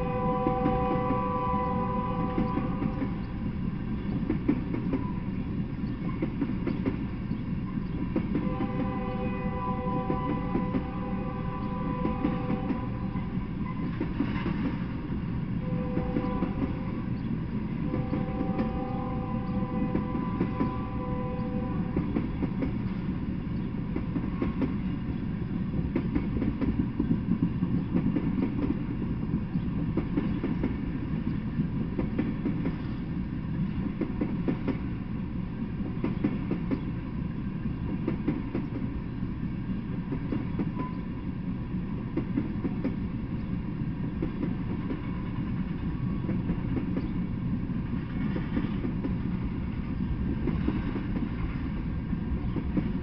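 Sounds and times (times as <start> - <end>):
train horn chord: 0.0 - 3.1, 8.4 - 13.3, 15.6 - 17.0, 17.8 - 22.2
train wheels rumbling on rails: 0.0 - 53.0.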